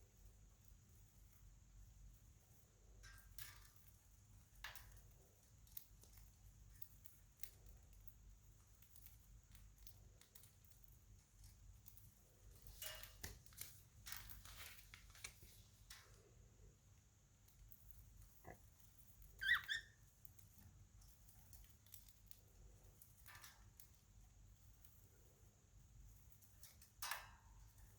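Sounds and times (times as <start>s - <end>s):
budgerigars chirping and clicking: 19.3s - 20.0s.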